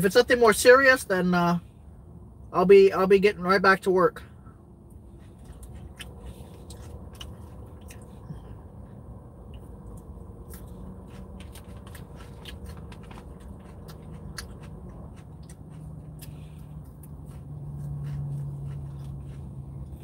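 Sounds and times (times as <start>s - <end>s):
low steady hum: 0.0s - 20.0s
person chewing salad: 4.9s - 20.0s.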